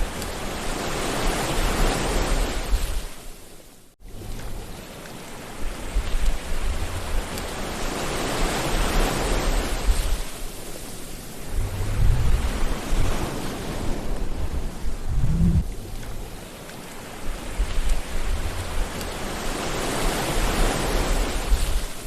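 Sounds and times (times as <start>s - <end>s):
sea waves washing in: 0.0s - 22.0s
deep rumbles: 11.4s - 13.3s, 14.1s - 16.4s.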